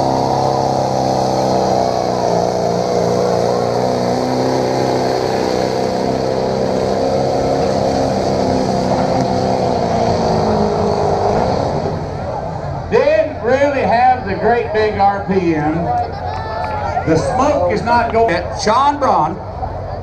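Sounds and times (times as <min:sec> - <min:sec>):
truck engine running at high revs: 0:00.0 - 0:20.0.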